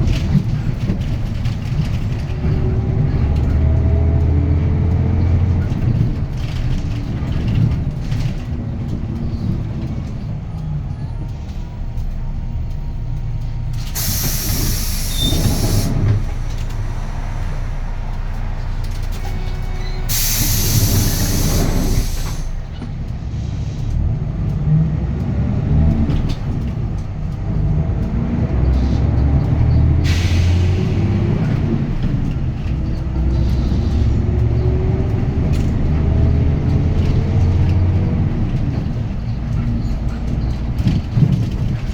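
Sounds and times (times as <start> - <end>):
bus diesel engine running: 0.0 - 41.9
compressed air hiss: 14.0 - 17.1, 20.1 - 22.6.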